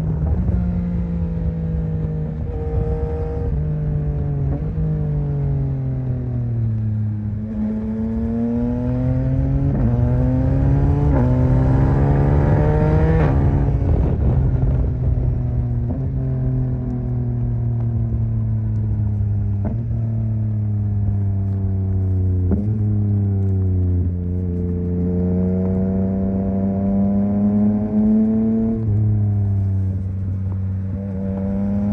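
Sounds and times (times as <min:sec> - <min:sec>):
motorcycle engine accelerating: 0:00.0 - 0:31.9.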